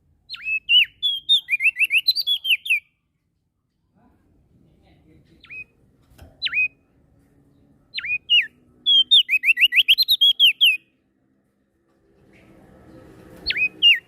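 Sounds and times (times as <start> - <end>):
songbird whistled notes: 0.3 - 2.9, 8.0 - 10.8, 13.4 - 14.0.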